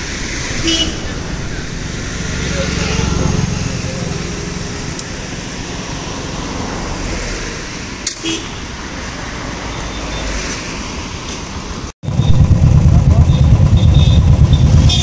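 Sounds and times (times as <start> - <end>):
road traffic: 0.0 - 15.0
motorcycle engines running: 0.3 - 6.7, 12.1 - 15.0
motorcycle engines idling: 12.1 - 15.0.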